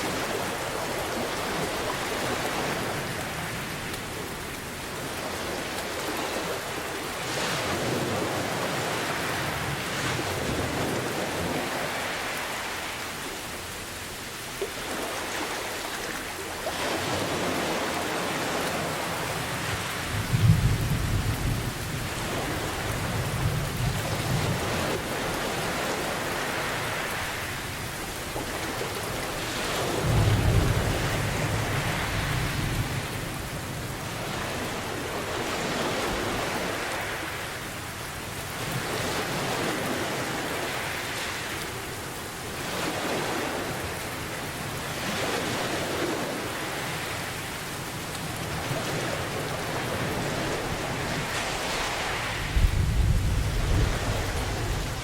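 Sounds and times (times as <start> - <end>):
heavy rain: 0.0 - 55.0
ocean waves washing in: 0.0 - 55.0
rolling thunder: 52.4 - 55.0.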